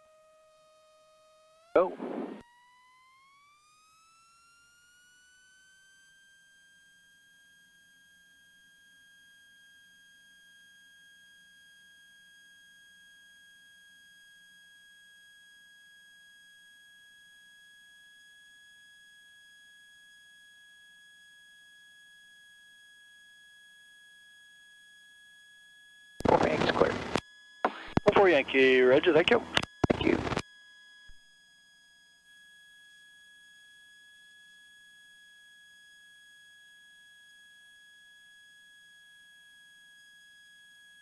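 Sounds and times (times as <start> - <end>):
high-pitched electrical whine: 26.2 - 30.4.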